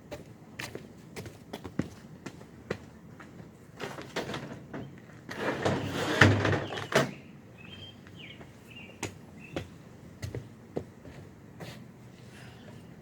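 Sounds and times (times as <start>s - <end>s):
sliding door scraping: 3.8s - 7.1s.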